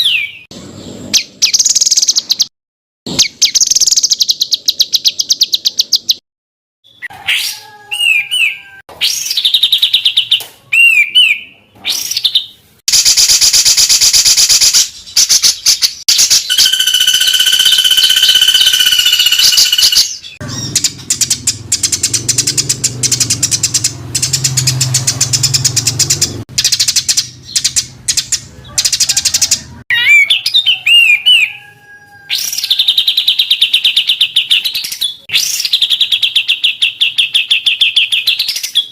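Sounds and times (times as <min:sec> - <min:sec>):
songbird trills and chattering: 0:14.6 - 0:31.6.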